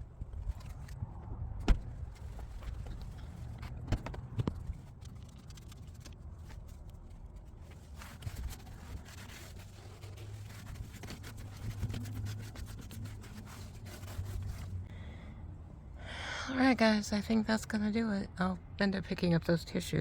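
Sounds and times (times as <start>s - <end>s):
cleaning wipe rubbing car surface: 7.4s - 14.8s.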